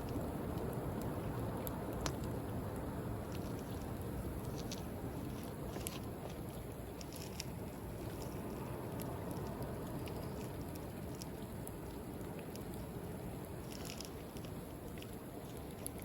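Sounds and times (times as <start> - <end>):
bonfire crackling and popping: 3.2 - 12.9.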